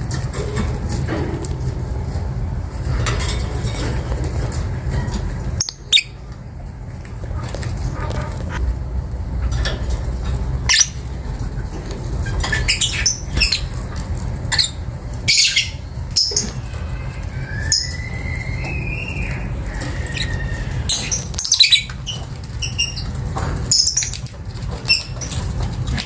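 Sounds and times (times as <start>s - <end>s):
steady low rumble: 0.0s - 12.5s
lovebirds chattering: 10.5s - 11.7s, 12.3s - 26.0s.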